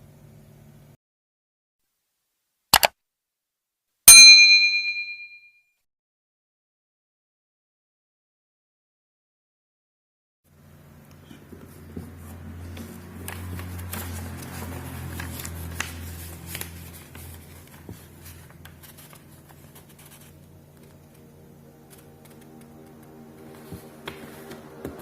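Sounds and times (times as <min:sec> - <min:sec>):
low steady hum: 0:10.5 - 0:25.0
paper rustling and crinkling: 0:11.4 - 0:25.0.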